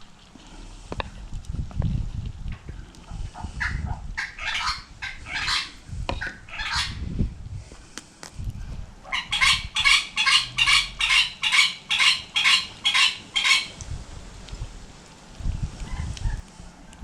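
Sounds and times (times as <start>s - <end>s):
bird calling harsh notes: 3.6s - 7.0s, 9.1s - 13.8s.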